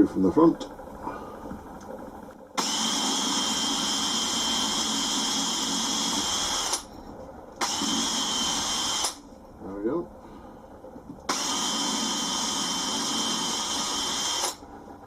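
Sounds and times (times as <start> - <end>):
electric drill whining: 2.6 - 6.9, 7.6 - 9.2, 11.3 - 14.6.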